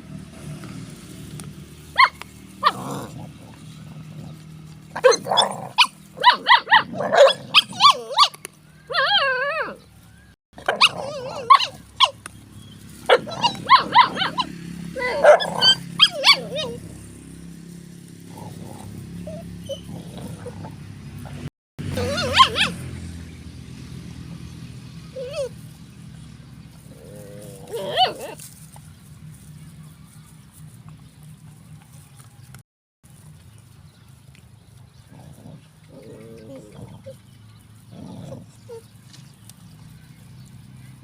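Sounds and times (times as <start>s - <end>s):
dog barking: 2.0s - 2.9s, 5.0s - 8.4s, 10.6s - 12.2s, 13.1s - 16.8s, 22.0s - 22.8s.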